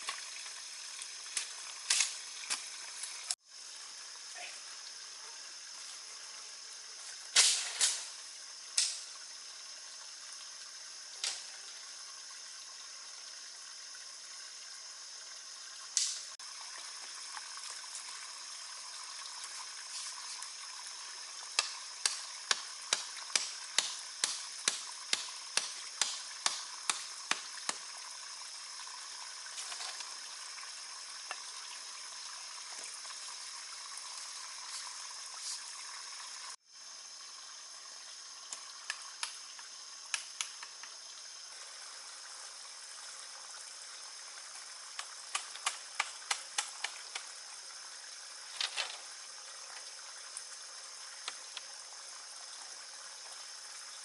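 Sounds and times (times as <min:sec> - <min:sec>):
steady hiss: 0:00.0 - 0:13.4.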